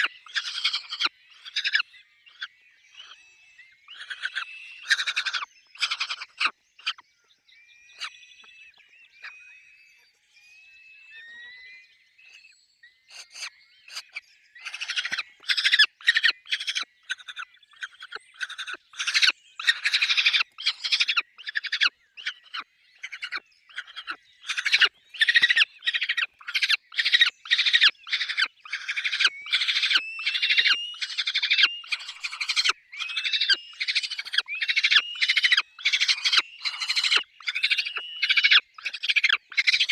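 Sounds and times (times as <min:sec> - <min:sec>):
falcon harsh rasping calls: 0:00.0 - 0:01.8, 0:18.4 - 0:21.8, 0:23.1 - 0:39.9.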